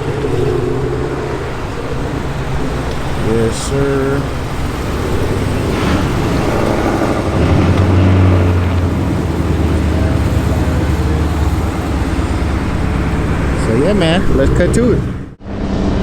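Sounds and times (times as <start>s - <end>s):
car engine droning: 0.0s - 16.0s.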